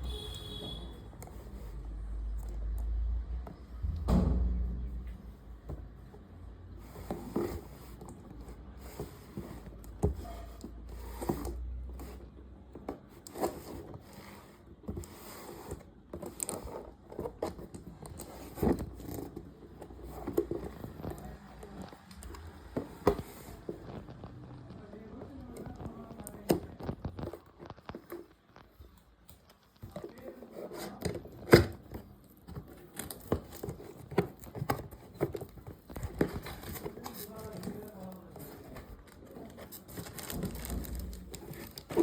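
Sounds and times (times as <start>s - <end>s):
packaging and plastic handling: 5.0s - 42.0s.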